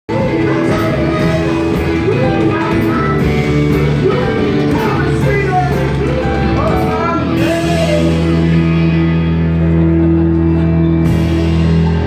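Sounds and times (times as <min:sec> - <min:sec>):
bass guitar: 0:00.0 - 0:12.0
singer: 0:00.1 - 0:09.0
drums: 0:00.1 - 0:12.0
electric guitar: 0:00.1 - 0:12.0
keyboards: 0:00.1 - 0:12.0.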